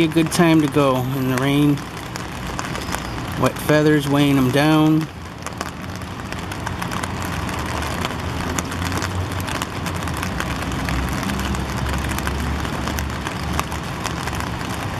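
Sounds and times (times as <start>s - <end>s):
raindrops ticking: 0.0s - 14.9s.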